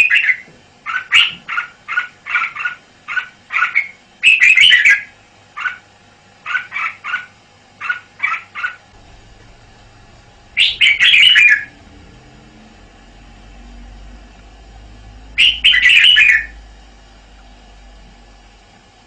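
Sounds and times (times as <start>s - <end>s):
bird chirping: 0.0s - 5.8s, 10.5s - 11.8s, 15.4s - 16.5s
bird warbled song: 0.0s - 5.8s, 10.5s - 11.9s, 15.4s - 16.5s.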